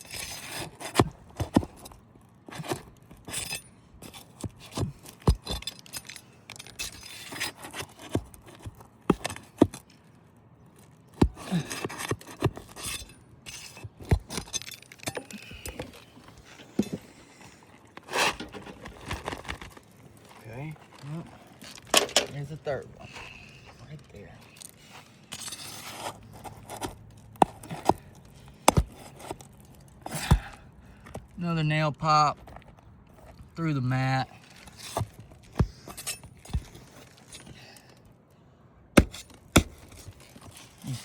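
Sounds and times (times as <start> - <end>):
metal bar scraping shingles: 0.0 - 1.9, 2.5 - 9.7, 11.1 - 20.2, 24.7 - 30.3.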